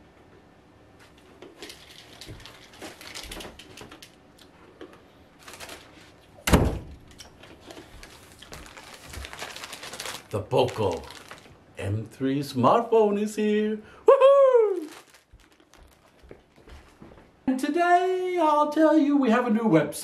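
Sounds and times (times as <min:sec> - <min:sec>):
door shutting with thump: 0:06.4 - 0:07.0.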